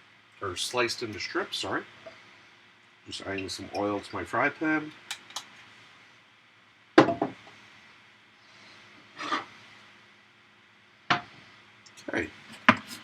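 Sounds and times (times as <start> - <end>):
object knocking on counter: 7.0 - 7.4
brief scraping rub: 9.2 - 9.5.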